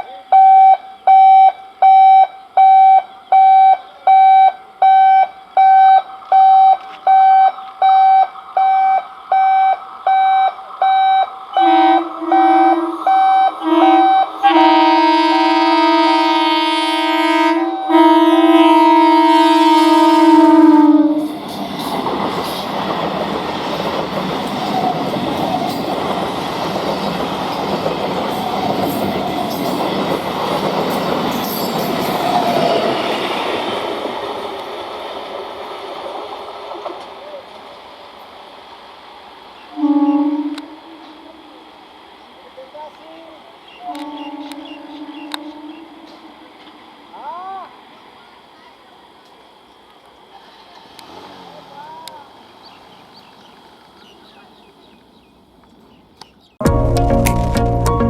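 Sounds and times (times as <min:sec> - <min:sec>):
rapid electronic warning beeps: 0:00.3 - 0:11.4
train rumbling past: 0:00.8 - 0:58.0
train horn: 0:11.5 - 0:21.4, 0:39.7 - 0:41.7, 0:43.7 - 0:46.8.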